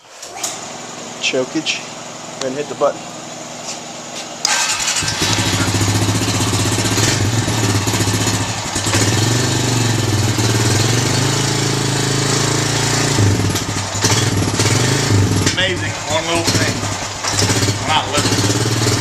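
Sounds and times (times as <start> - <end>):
four-stroke engine idling: 4.4 - 19.0.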